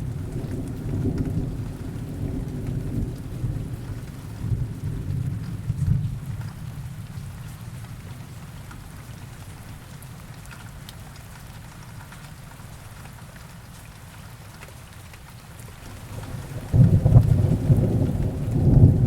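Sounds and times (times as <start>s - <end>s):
heavy rain: 0.0s - 19.0s
thunder rumble: 15.8s - 19.0s.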